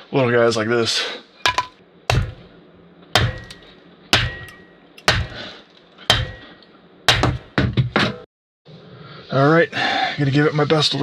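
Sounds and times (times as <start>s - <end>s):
axe chopping firewood: 1.5s - 2.5s, 3.2s - 7.7s.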